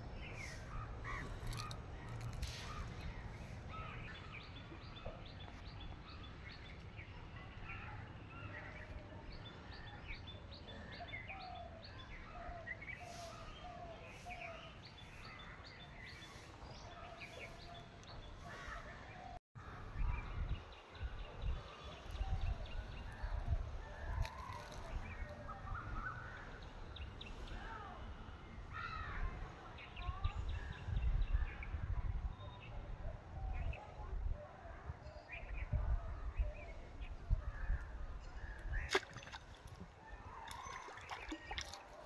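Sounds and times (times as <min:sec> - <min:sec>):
birds chirping and calling: 0:00.0 - 0:31.7.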